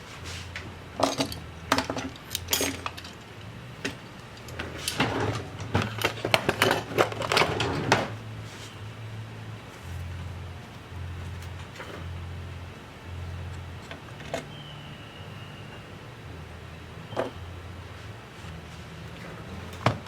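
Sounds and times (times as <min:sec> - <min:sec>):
metal tools clinking on workbench: 0:01.0 - 0:07.9.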